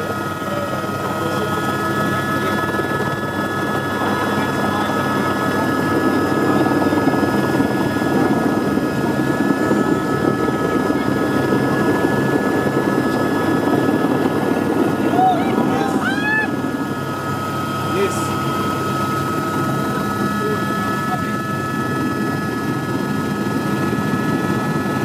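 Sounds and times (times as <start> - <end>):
helicopter rotor and engine drone: 0.0 - 25.0.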